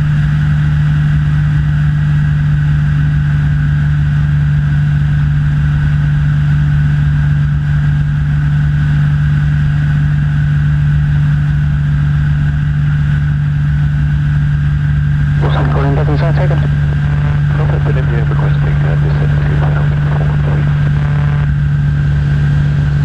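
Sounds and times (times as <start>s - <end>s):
aircraft engine droning: 14.4s - 23.0s.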